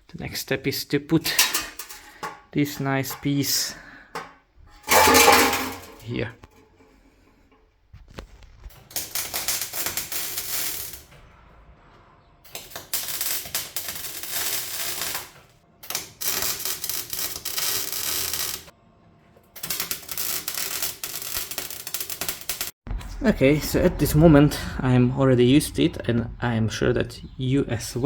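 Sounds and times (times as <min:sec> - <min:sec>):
welder crackling: 0:01.2 - 0:06.9, 0:08.7 - 0:11.1, 0:12.5 - 0:18.7, 0:19.6 - 0:22.8.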